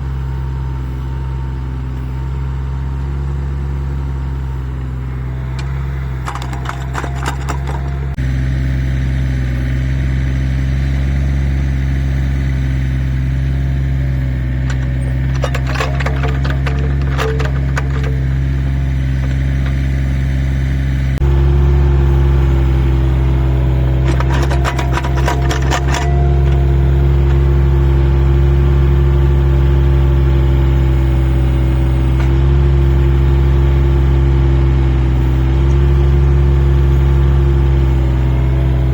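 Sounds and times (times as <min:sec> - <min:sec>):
excavator engine running: 0:00.0 - 0:38.9
rapid rattling clatter: 0:05.6 - 0:08.2, 0:14.6 - 0:20.4, 0:24.0 - 0:28.1.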